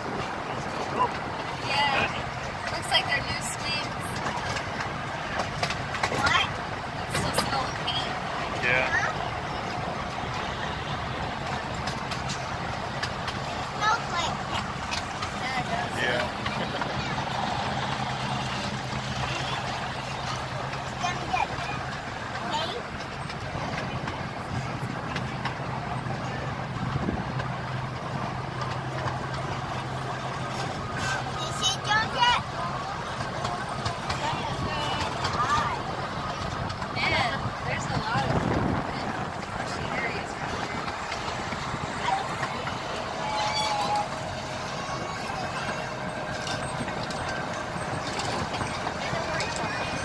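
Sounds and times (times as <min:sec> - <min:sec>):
miniature train engine hum: 0:00.0 - 0:50.0
train cars clicking and rattling: 0:00.0 - 0:50.0
faint thin squeal: 0:43.2 - 0:44.1.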